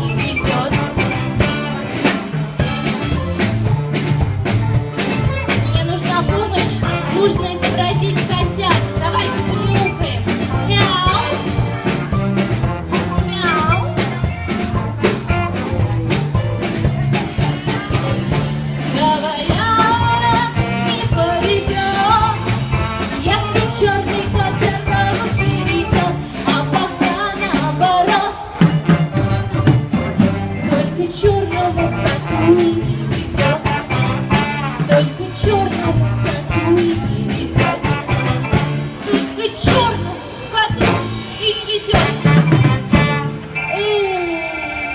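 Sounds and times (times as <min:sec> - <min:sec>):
person singing: 0:00.0 - 0:02.2
drum kit beat: 0:00.0 - 0:44.1
jazz orchestra playing rock and roll: 0:00.0 - 0:44.9.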